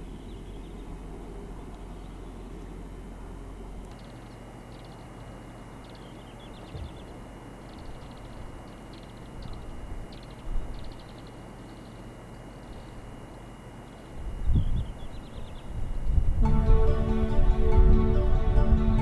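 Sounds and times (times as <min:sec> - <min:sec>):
small bird trilling and chirping: 0:03.9 - 0:15.8
wind rumble on microphone: 0:14.2 - 0:19.0.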